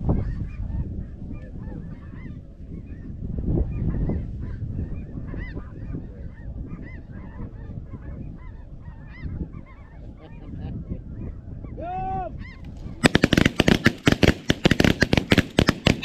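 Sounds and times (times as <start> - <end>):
snow geese honking: 3.8 - 11.8.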